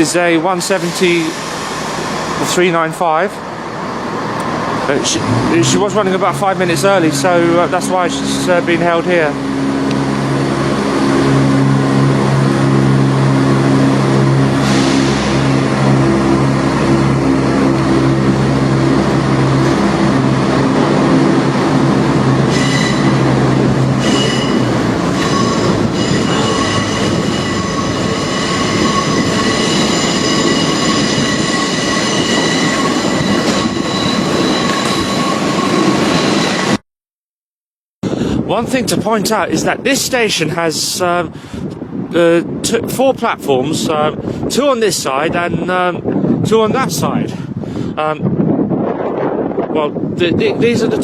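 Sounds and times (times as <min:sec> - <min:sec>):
diesel train engine drone: 0:00.0 - 0:36.8
rumble of train wheels: 0:00.0 - 0:36.8
train wheel squeal: 0:00.7 - 0:02.6, 0:22.4 - 0:36.8.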